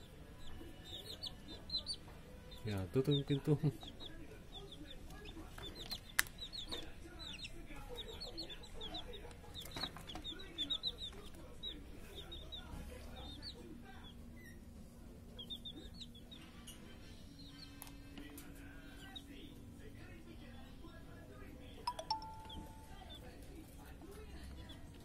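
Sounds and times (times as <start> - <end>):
birds clucking: 0.0 - 19.3.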